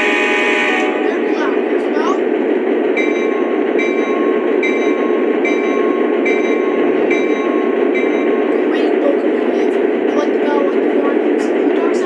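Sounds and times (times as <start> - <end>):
model train rumbling: 0.0 - 12.0.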